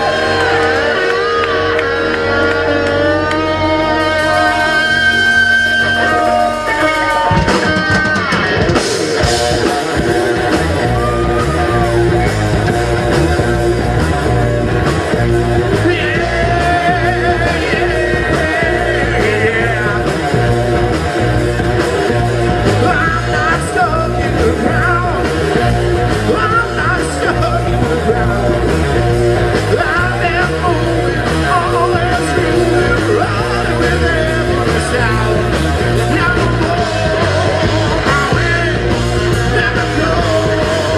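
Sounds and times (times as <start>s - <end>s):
live rock band playing: 0.0s - 40.9s
person singing: 9.6s - 21.0s, 22.6s - 40.9s.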